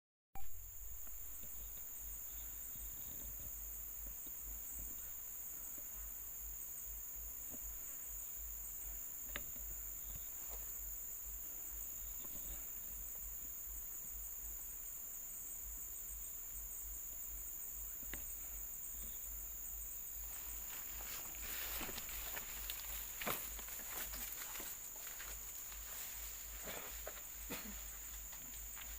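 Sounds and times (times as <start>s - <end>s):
insects droning: 0.4s - 28.9s.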